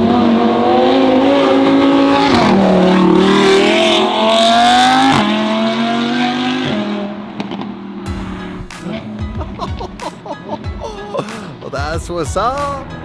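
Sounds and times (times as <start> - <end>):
car engine accelerating: 0.0 - 9.1.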